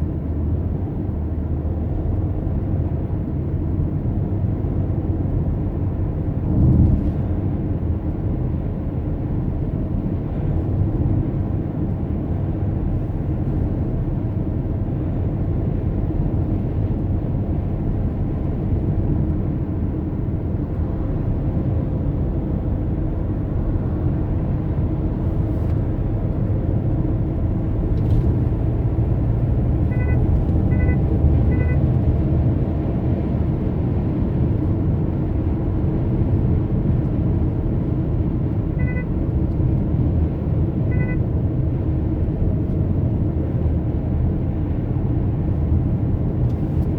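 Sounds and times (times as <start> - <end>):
car road and engine rumble: 0.0 - 46.9
short electronic beeps: 29.8 - 31.8, 38.8 - 39.2, 40.9 - 41.2.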